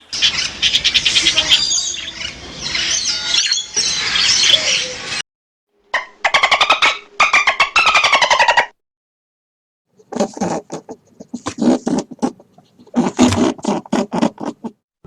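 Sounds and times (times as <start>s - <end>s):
chorus of high chirps and squeals: 0.0s - 5.2s, 6.0s - 8.7s.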